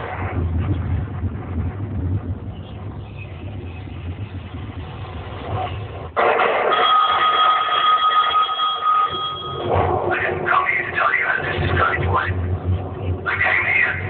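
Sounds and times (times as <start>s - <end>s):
background hum and murmur: 0.0s - 14.0s
piercing high tone: 6.7s - 14.0s.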